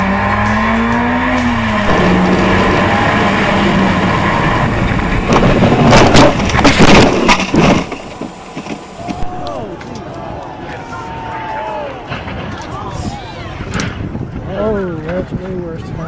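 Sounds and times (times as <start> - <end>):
car engine running: 0.0 - 7.2
steady rushing noise: 1.7 - 9.1
loud harsh bursts: 1.9 - 5.4.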